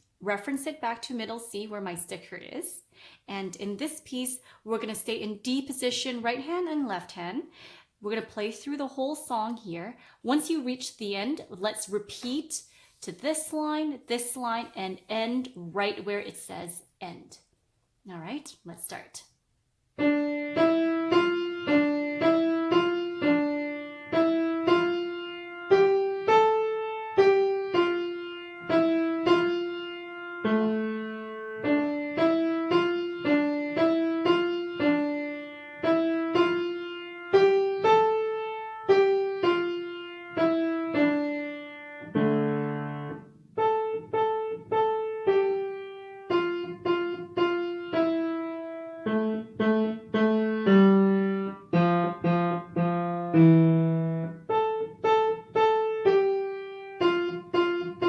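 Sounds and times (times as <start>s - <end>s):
simple piano melody: 19.9s - 58.0s.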